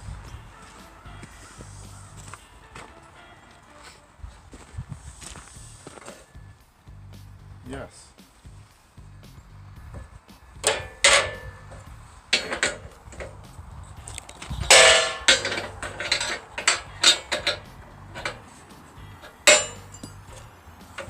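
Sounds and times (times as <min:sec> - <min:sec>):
metal clanks and knocks: 0:09.9 - 0:21.0.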